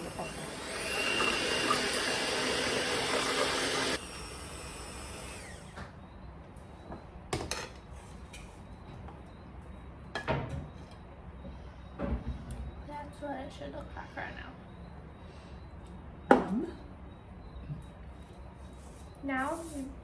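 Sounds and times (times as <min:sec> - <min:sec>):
electric hand mixer beating: 0:00.0 - 0:05.8.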